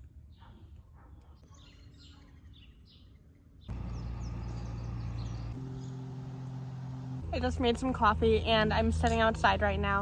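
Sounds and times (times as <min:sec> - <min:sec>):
small birds chirping: 0:00.2 - 0:07.2
steady low hum: 0:03.7 - 0:07.6.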